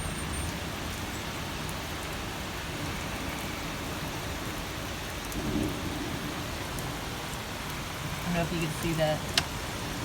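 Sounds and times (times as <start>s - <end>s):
heavy rain pouring: 0.0s - 10.0s
thunder rumbling: 5.3s - 7.0s.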